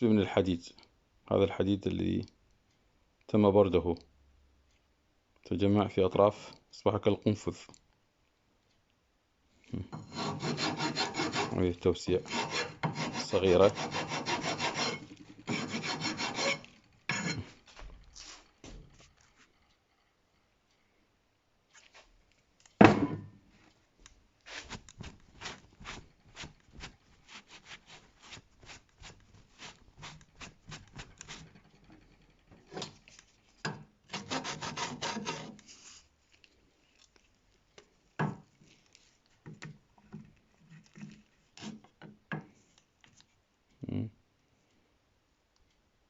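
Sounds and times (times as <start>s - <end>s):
hand file rasping: 10.0s - 17.6s, 34.1s - 35.8s, 41.6s - 41.8s.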